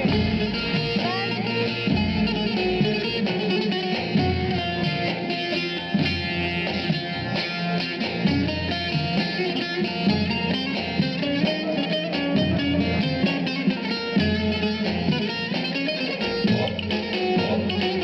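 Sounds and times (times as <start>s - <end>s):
steady bass line: 0.0s - 3.3s, 16.2s - 18.0s
plucked saz notes: 0.0s - 18.0s.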